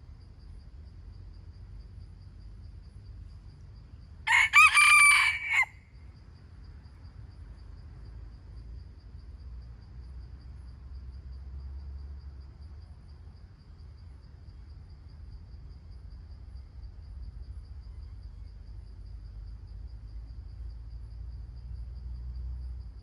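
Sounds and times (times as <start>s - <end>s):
rooster crowing: 4.3s - 5.9s.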